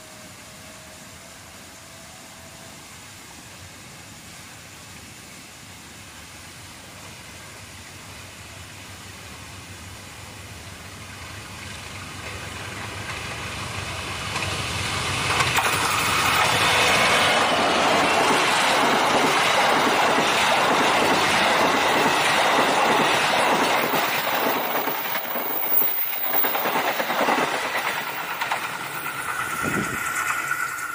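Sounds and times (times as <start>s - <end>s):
train rumble: 0.0s - 30.9s
train wheels clattering over rail joints: 12.1s - 30.9s.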